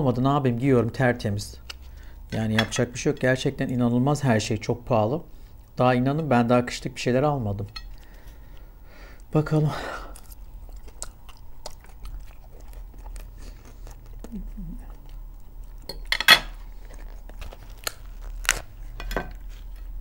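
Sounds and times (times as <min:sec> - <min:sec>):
crusty bread tearing: 0:10.0 - 0:20.0
chewing with wet mouth clicks: 0:10.1 - 0:18.1.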